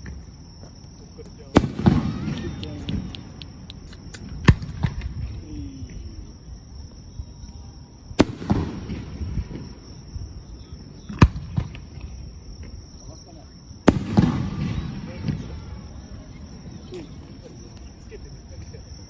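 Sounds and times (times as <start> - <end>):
fireworks bursting: 0.0 - 6.1, 8.0 - 10.0, 13.8 - 19.0.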